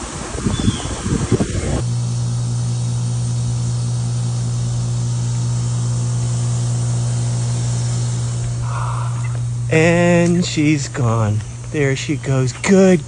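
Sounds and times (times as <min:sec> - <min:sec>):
wind noise on microphone: 0:00.0 - 0:02.0
low mechanical hum: 0:00.0 - 0:13.0.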